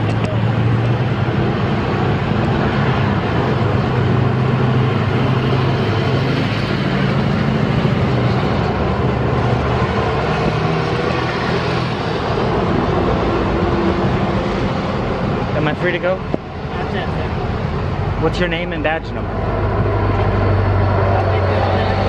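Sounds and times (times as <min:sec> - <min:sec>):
steady engine noise: 0:00.0 - 0:22.0.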